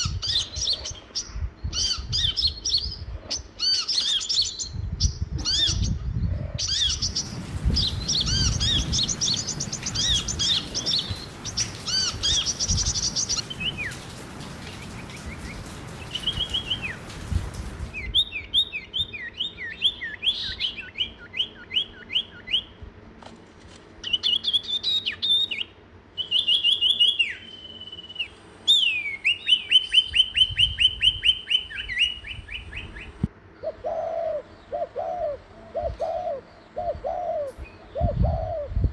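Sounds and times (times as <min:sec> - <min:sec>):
songbirds chirping: 0:00.0 - 0:23.2, 0:23.9 - 0:38.7
bird trilling: 0:06.7 - 0:17.2.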